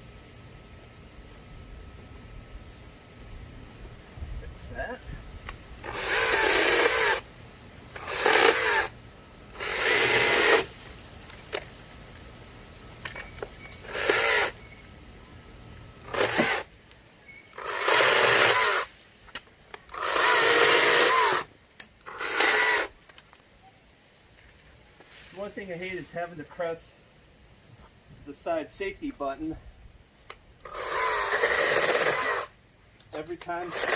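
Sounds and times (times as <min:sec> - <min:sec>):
electric chainsaw motor bursts: 0:05.8 - 0:07.3, 0:07.9 - 0:10.8, 0:13.8 - 0:14.6, 0:16.0 - 0:16.7, 0:17.5 - 0:19.0, 0:19.9 - 0:23.0, 0:30.6 - 0:32.6, 0:33.6 - 0:33.9.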